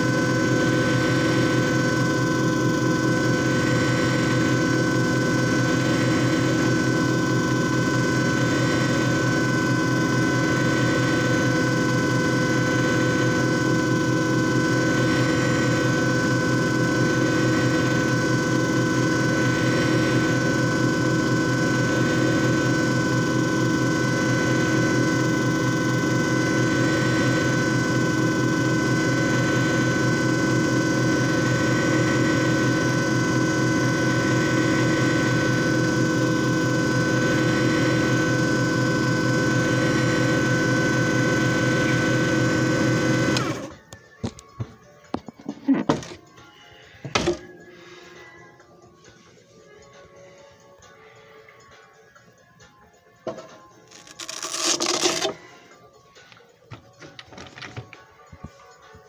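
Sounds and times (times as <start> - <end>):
machine motor whirring: 0.0 - 43.8, 45.8 - 46.2, 53.8 - 55.6.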